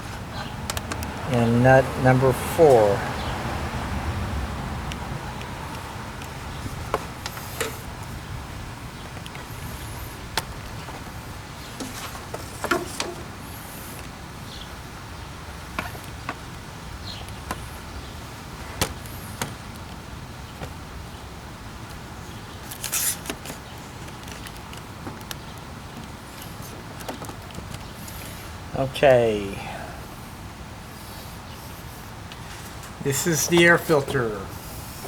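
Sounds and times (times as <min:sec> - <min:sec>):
rustle: 0:06.4 - 0:28.7, 0:30.0 - 0:35.0.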